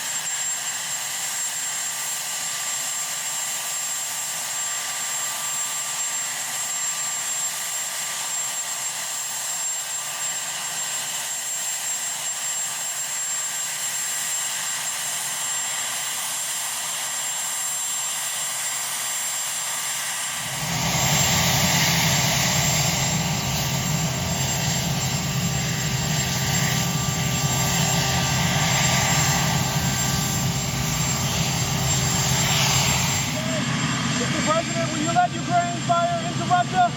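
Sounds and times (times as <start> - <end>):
helicopter engines and rotor: 0.0 - 36.9.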